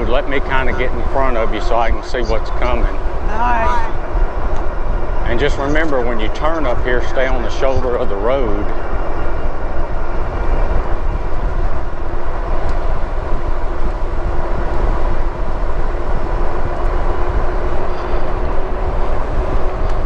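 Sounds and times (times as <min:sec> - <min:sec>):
road noise: 0:00.0 - 0:20.0
wind buffeting microphone: 0:00.0 - 0:20.0.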